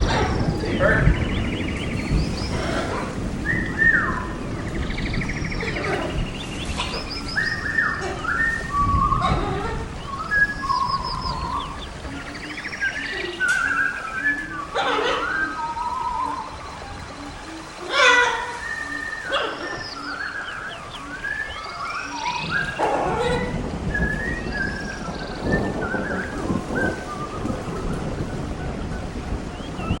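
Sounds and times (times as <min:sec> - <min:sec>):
birds whistling and chirping: 0:00.0 - 0:30.0
steady rushing noise: 0:00.0 - 0:30.0
parrots chattering: 0:02.0 - 0:03.3, 0:12.1 - 0:23.6.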